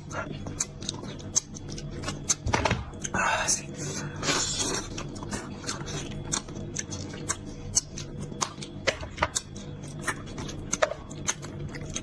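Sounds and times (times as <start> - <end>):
wet chewing and lip smacking: 4.6 - 12.0.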